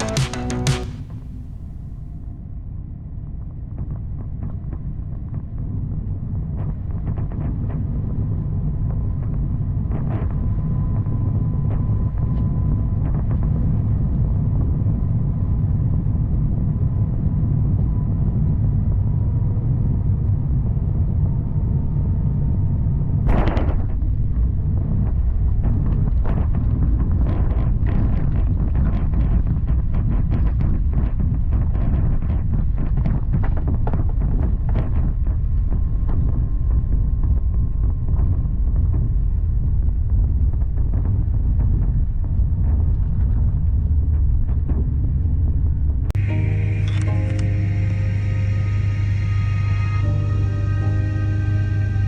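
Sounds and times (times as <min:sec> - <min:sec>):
sharp knock: 0:00.0 - 0:01.1
airliner engine and airflow rumble: 0:01.0 - 0:52.0.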